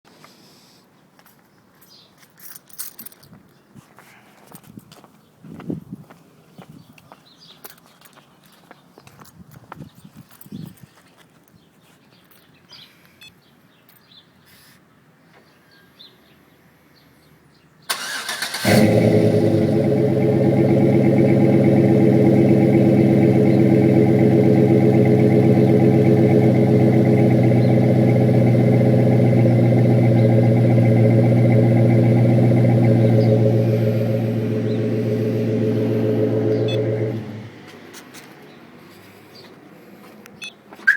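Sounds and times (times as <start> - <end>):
engine cranking and starting: 17.9 - 37.5
engine idling loudly: 18.6 - 37.5.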